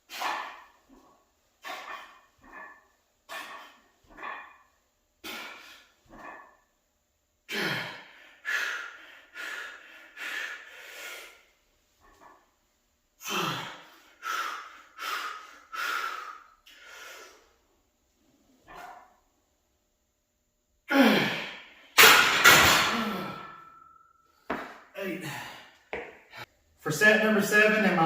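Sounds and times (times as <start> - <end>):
man exhaling forcefully: 5.2 - 5.9, 13.2 - 17.4, 20.9 - 21.8.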